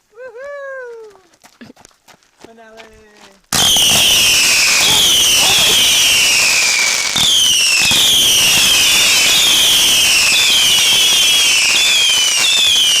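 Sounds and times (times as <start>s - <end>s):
fireworks pops: 3.5s - 13.0s
fireworks whistles falling in pitch: 3.5s - 13.0s.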